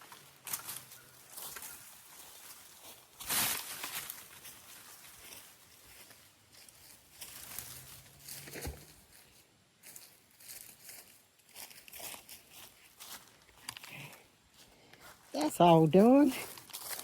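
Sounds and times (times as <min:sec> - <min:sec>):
dry leaves and twigs rustling: 0:00.0 - 0:17.0.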